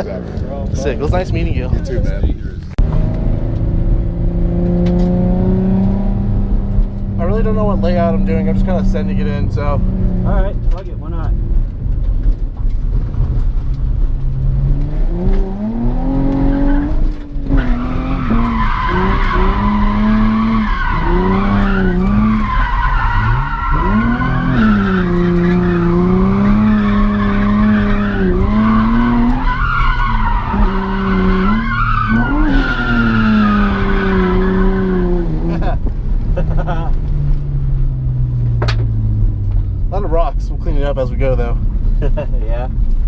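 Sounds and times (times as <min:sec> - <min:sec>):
car engine revving: 0:02.7 - 0:43.0.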